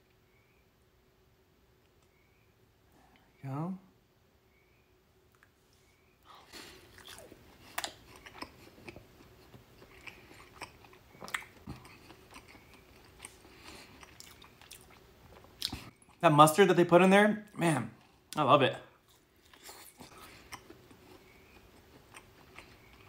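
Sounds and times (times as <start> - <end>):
chewing with wet mouth smacks: 6.5 - 16.2, 19.1 - 23.0.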